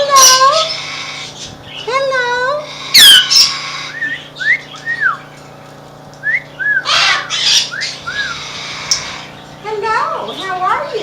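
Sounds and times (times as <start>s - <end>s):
parrots whistling: 0.0s - 1.9s, 2.6s - 5.3s, 6.2s - 9.4s
parrots squawking: 0.0s - 5.4s, 6.5s - 11.0s.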